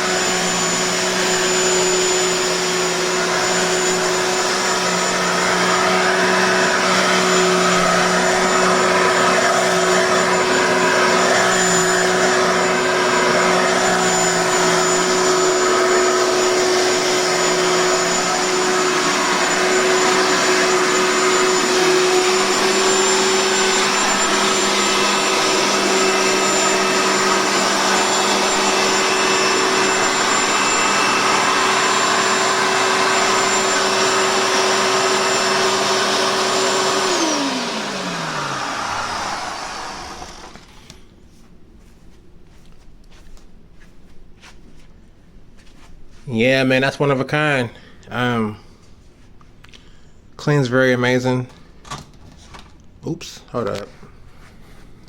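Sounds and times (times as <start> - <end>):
vacuum cleaner running: 0.0 - 41.2.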